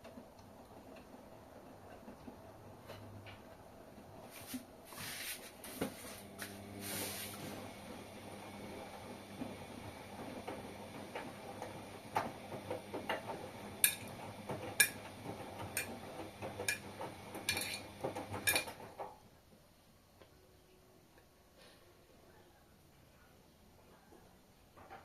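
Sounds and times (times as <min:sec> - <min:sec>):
washing machine motor humming: 0:05.6 - 0:19.0.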